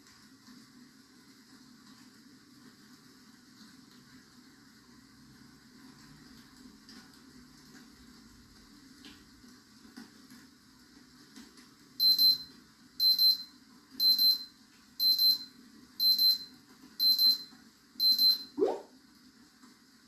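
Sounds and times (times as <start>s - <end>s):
digital timer double beeps: 12.0s - 18.9s.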